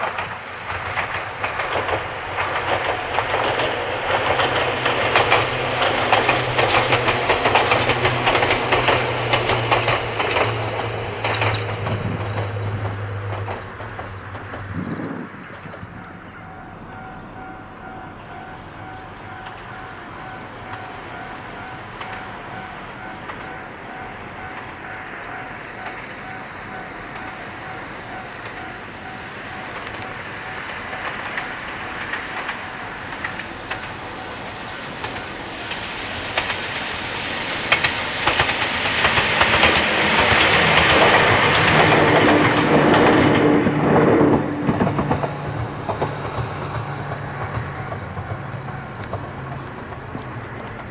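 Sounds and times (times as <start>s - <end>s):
electric train passing: 0.0s - 50.9s
wheels clickety-clack over rail joints: 0.0s - 50.9s
faint level-crossing bell: 15.9s - 33.2s, 46.9s - 49.4s.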